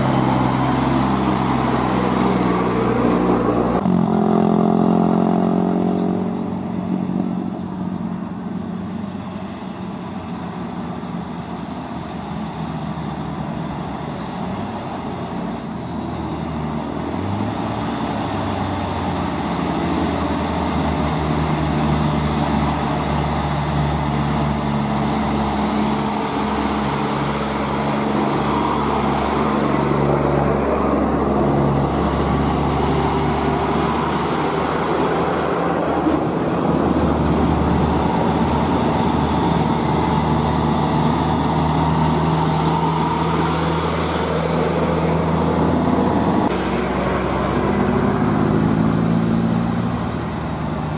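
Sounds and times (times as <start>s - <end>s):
diesel truck engine: 0.0s - 50.9s
tyre and road noise: 0.0s - 50.9s.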